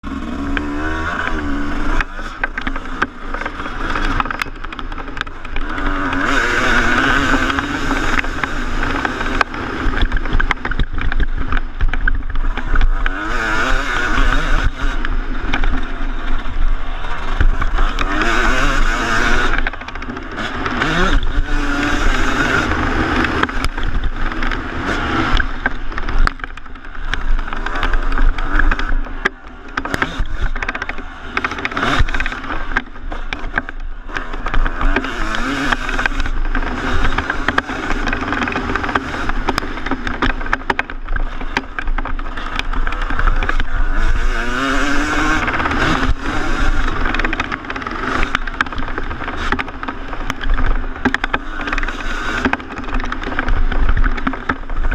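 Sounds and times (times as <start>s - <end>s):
motocross engine revving: 0.0s - 54.9s.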